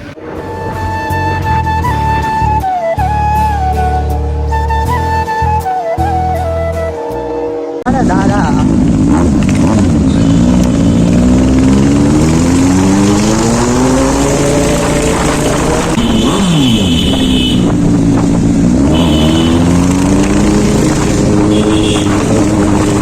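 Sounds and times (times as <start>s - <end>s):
motorcycle engine accelerating: 6.9s - 23.0s
wind rushing over microphone: 12.8s - 18.9s, 20.0s - 23.0s.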